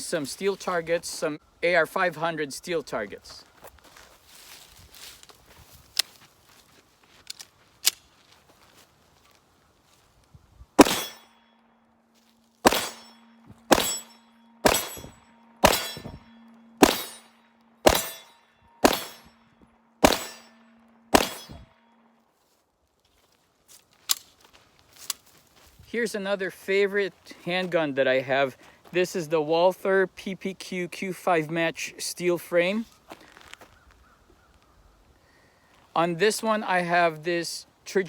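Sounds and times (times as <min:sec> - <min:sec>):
pistol shots: 0:10.8 - 0:11.3, 0:12.6 - 0:19.3, 0:20.0 - 0:21.7
steel targets ringing: 0:10.8 - 0:11.6, 0:12.2 - 0:22.2.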